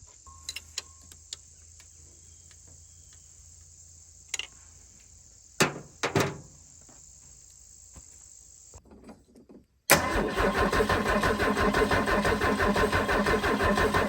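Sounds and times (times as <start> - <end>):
insects chirring: 0.0 - 8.9.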